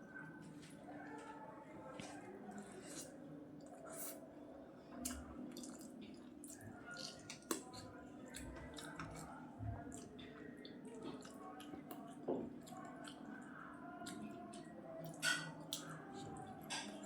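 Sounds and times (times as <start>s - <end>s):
wet chewing sounds: 5.0s - 17.0s.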